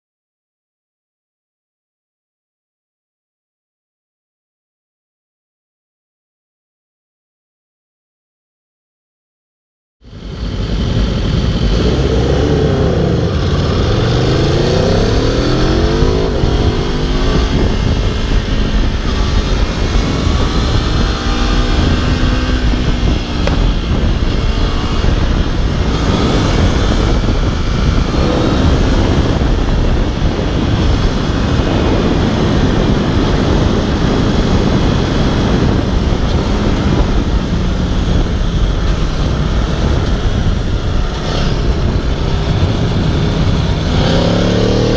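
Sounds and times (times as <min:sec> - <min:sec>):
motorcycle engine accelerating and shifting: 0:10.0 - 0:44.9.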